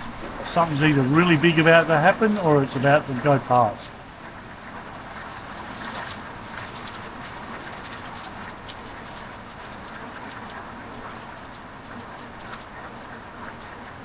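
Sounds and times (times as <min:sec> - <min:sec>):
heavy rain pouring: 0:00.0 - 0:04.3.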